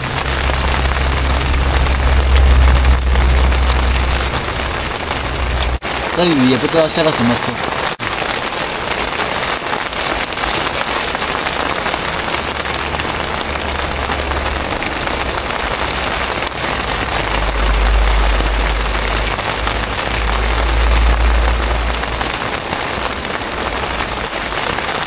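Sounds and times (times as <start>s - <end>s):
low rumble: 0.0s - 6.2s, 11.3s - 24.5s
rain falling on a tent: 0.0s - 25.0s.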